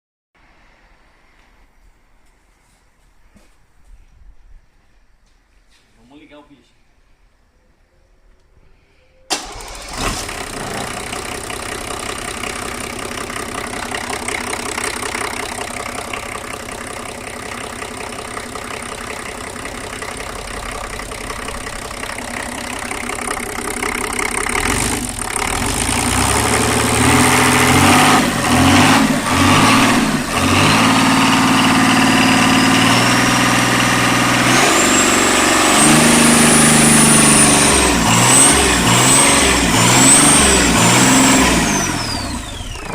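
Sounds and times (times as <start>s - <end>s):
diesel engine idling and revving: 9.4s - 42.9s.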